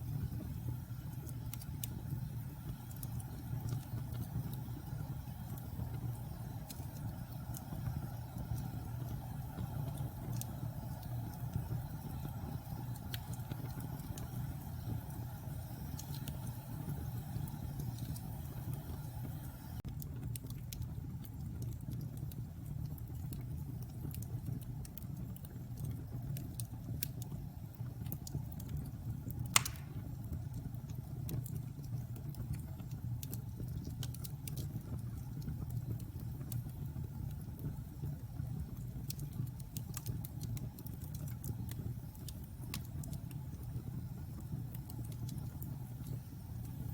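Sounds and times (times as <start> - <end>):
fire crackling: 0.0 - 46.9
rumble of fire flames: 0.0 - 46.9
sharp loud pop: 29.6 - 30.0.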